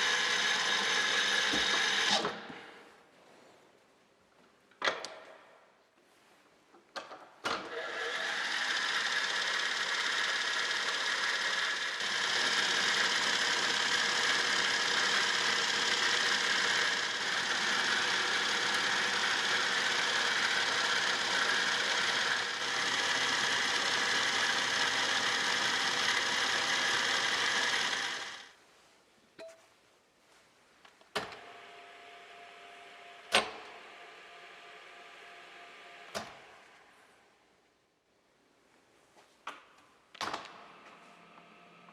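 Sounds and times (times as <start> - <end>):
milling machine whirring: 0.0 - 2.4, 7.7 - 28.5.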